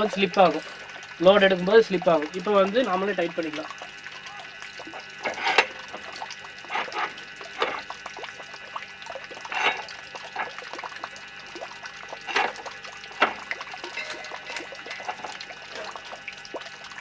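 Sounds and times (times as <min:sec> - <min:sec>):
faint steady hum: 0:00.0 - 0:17.0
metal scrapes and clinks: 0:13.8 - 0:15.9.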